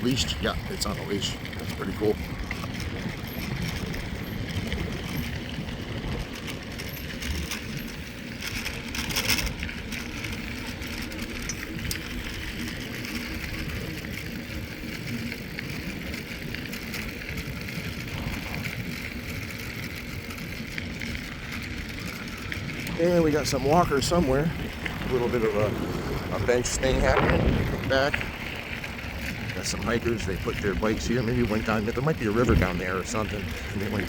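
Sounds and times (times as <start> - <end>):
bike clatter: 0.0 - 34.0
bike tyres crunching on gravel: 0.0 - 34.0
wind on microphone: 0.0 - 34.0.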